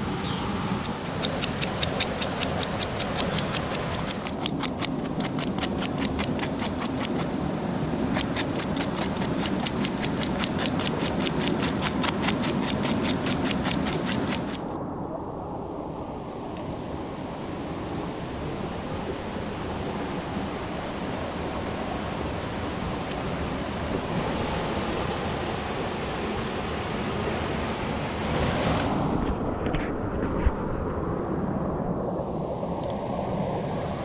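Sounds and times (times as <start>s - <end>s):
rushing flowing water: 0.0s - 14.8s.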